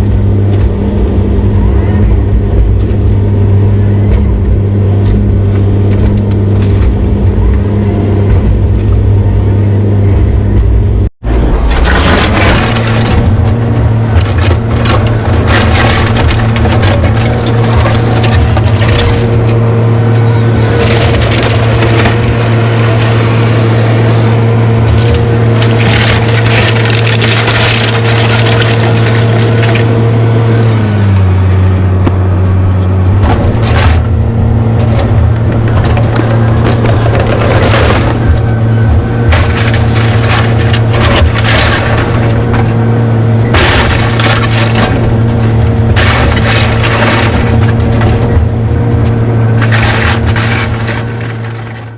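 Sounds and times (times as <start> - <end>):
debris crunching and splintering: 0.0 - 51.9
diesel engine humming: 0.0 - 51.9.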